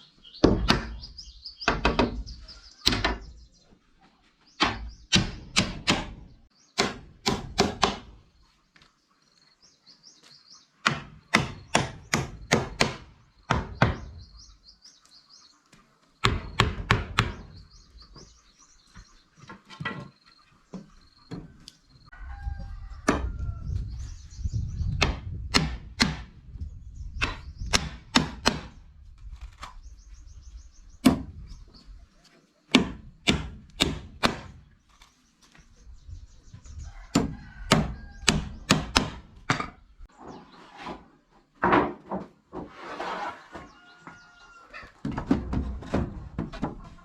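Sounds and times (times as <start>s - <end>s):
hand tool striking wood: 6.8s - 8.2s, 25.0s - 26.3s, 27.2s - 28.8s, 32.7s - 34.6s, 37.1s - 39.8s.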